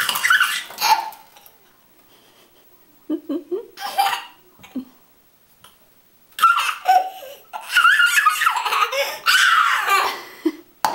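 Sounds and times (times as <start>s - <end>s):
toddler laughing and squealing: 0.0s - 1.2s, 6.4s - 10.2s.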